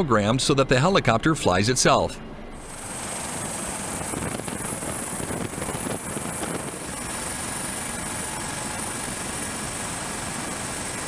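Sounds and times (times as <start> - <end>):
helicopter rotor and engine: 2.6 - 11.0.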